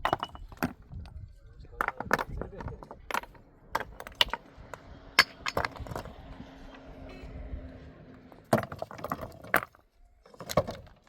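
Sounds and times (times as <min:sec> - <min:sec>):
hard objects knocking and clinking: 0:00.0 - 0:00.9, 0:01.8 - 0:06.2, 0:08.4 - 0:11.0.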